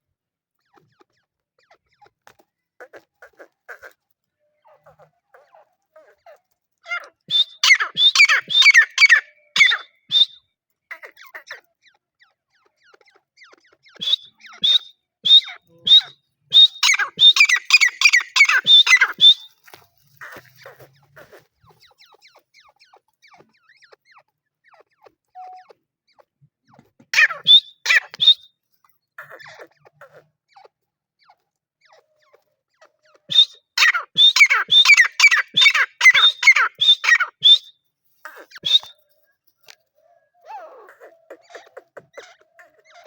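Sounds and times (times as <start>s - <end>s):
francolin calling harsh notes: 14.0s - 19.5s, 33.3s - 37.7s.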